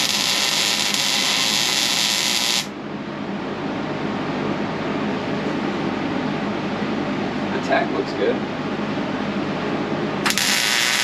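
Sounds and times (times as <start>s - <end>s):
welder arc frying hiss: 0.0s - 2.7s, 10.2s - 11.0s
steady background hiss: 0.0s - 11.0s.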